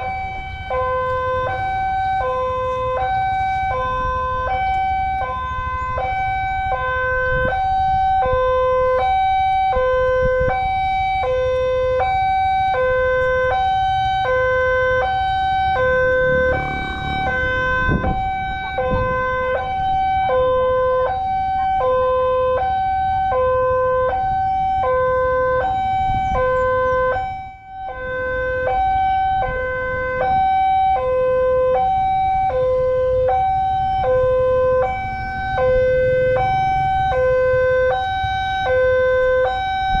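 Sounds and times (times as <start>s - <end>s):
two-tone electronic warning signal: 0.0s - 40.0s
low rumble: 15.7s - 19.5s.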